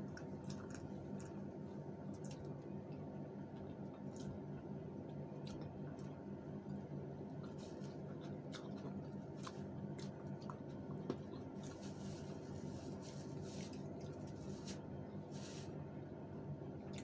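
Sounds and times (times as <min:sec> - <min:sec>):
steady low hum: 0:00.0 - 0:17.0
people chewing: 0:00.1 - 0:01.4, 0:05.0 - 0:14.6.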